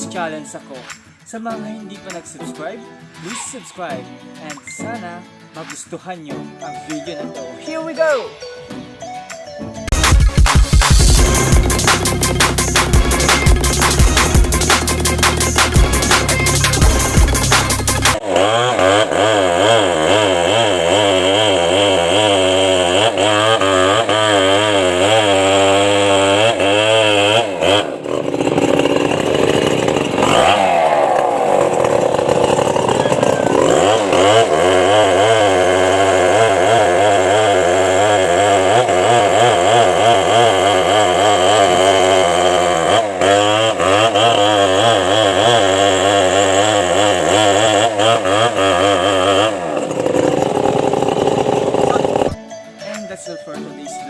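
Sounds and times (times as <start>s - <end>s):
chainsaw revving: 9.9s - 52.4s.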